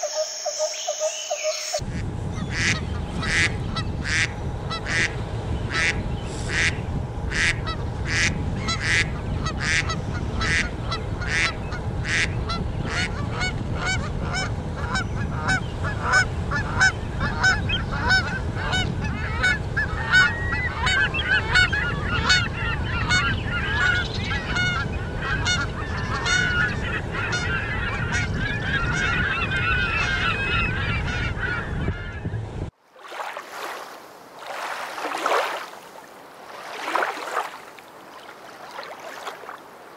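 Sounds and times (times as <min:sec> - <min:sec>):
steady low rumble: 0:01.8 - 0:32.7
geese honking: 0:02.4 - 0:32.3.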